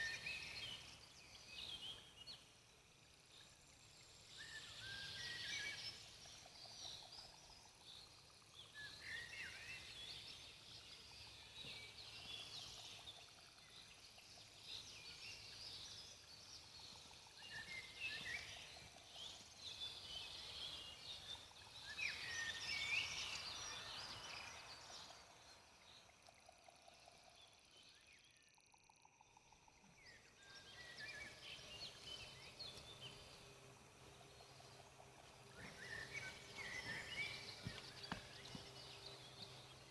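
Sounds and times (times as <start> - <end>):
birds chirping and singing: 34.2 - 39.9.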